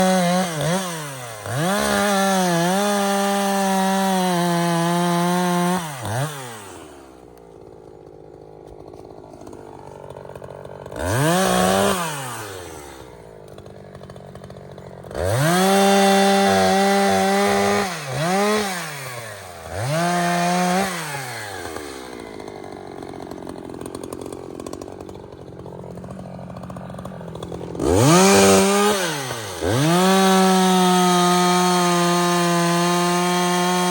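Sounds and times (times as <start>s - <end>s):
chainsaw cutting wood: 0.0s - 33.9s.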